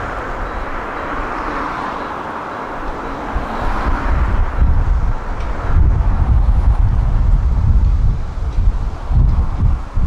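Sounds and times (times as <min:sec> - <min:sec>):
electric train rumbling past: 0:00.0 - 0:10.0
wind buffeting microphone: 0:02.7 - 0:10.0.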